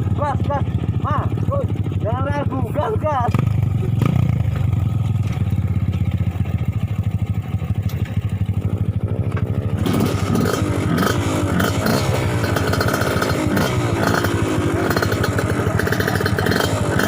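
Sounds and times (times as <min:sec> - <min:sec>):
motorcycle engine pulsing: 0:00.0 - 0:17.0
engine revving: 0:03.0 - 0:04.8, 0:09.7 - 0:17.0.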